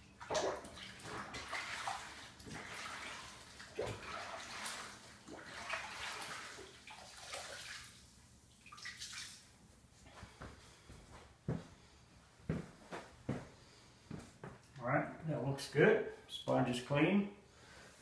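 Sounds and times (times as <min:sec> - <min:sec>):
tap water splashing: 0:00.2 - 0:08.0.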